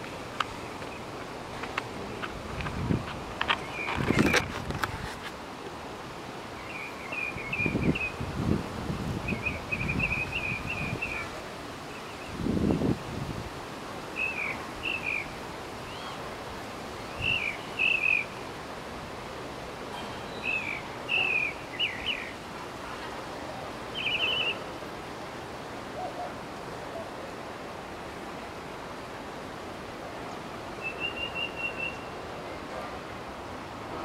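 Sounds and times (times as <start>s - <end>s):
outdoor hiss: 0.0s - 34.0s
bird chirping: 20.0s - 22.4s, 23.9s - 24.6s, 30.8s - 32.1s.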